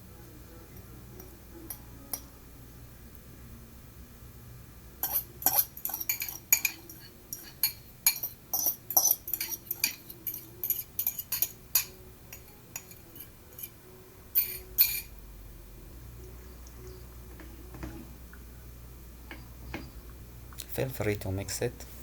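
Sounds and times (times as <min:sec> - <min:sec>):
fork clinking against a dish: 0:05.0 - 0:13.8, 0:14.4 - 0:15.2.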